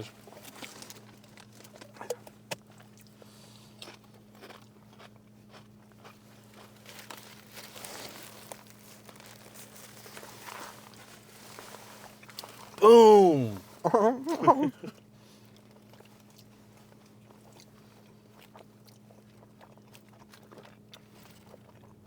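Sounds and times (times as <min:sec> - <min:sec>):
person chewing crunchy food: 0:00.7 - 0:07.6, 0:17.4 - 0:22.0.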